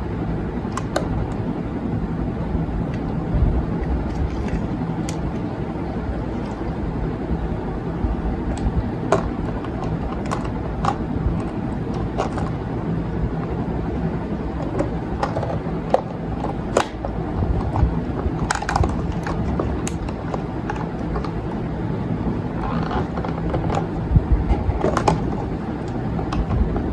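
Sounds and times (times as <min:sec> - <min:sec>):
low background rumble and hum: 0:00.0 - 0:26.9
items clicking and knocking: 0:00.7 - 0:01.5, 0:03.8 - 0:05.5, 0:08.6 - 0:12.8, 0:14.4 - 0:21.7, 0:22.5 - 0:26.9.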